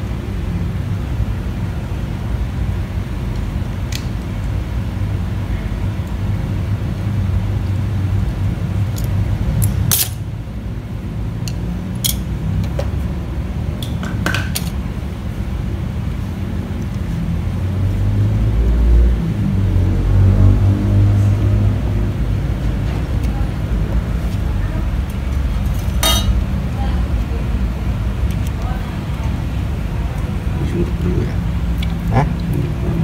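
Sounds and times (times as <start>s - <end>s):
steady low rumble: 14.7s - 33.0s.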